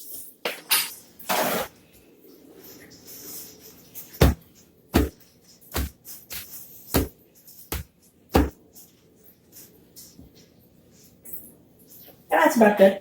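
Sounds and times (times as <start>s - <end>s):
sharp knocks on hard surface: 4.2s - 4.4s, 5.0s - 5.2s, 7.7s - 8.6s.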